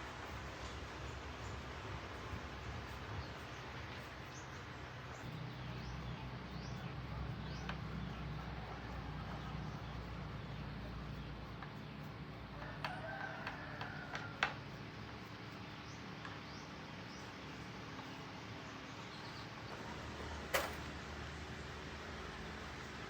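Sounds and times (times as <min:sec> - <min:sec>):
rooster crowing: 0:12.5 - 0:14.8
sharp click: 0:20.5 - 0:21.0.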